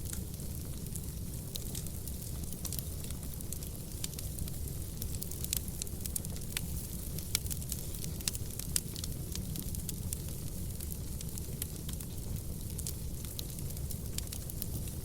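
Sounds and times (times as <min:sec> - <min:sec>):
burning logs crackling and popping: 0:00.0 - 0:15.0
fire flames rumbling: 0:00.0 - 0:15.0.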